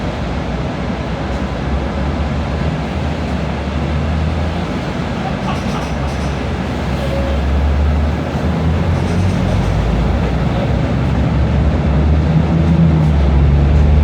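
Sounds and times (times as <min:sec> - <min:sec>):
motor vehicle rumble: 0:00.0 - 0:14.0.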